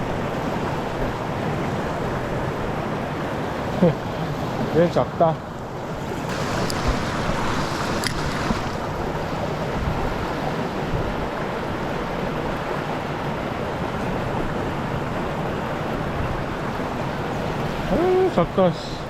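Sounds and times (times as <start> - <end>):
stream water flowing over rocks: 6.0 - 9.3.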